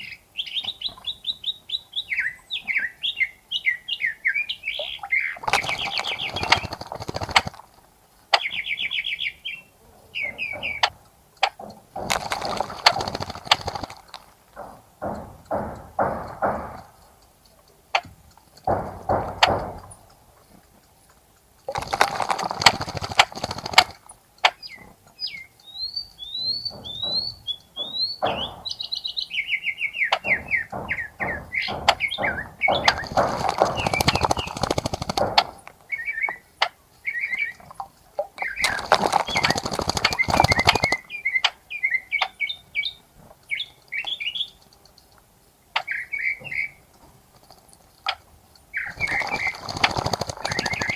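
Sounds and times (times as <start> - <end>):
bird chirping: 0.0 - 7.7, 8.3 - 14.2, 21.8 - 44.8, 45.8 - 50.9
birds splashing in water: 4.3 - 9.4, 10.2 - 17.1, 18.5 - 20.3, 21.6 - 25.0, 29.4 - 42.4, 43.3 - 50.9.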